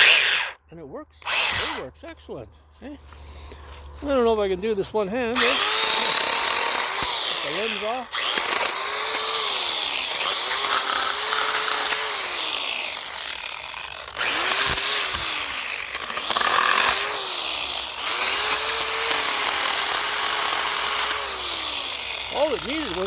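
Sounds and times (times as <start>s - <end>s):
chain cutting through wood: 0.0s - 0.6s, 1.2s - 2.2s, 3.1s - 23.0s
electric chainsaw motor whining: 0.0s - 0.6s, 1.2s - 2.1s, 3.2s - 23.0s.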